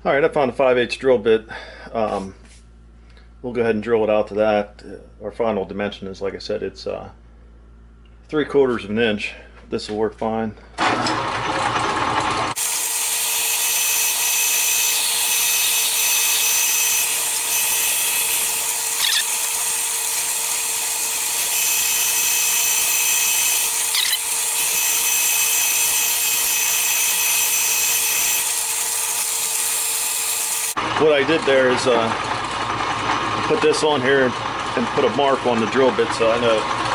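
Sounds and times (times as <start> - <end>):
machine motor humming: 12.5 - 30.8
drill bit cutting metal: 12.6 - 30.8
high squeals: 12.6 - 30.8.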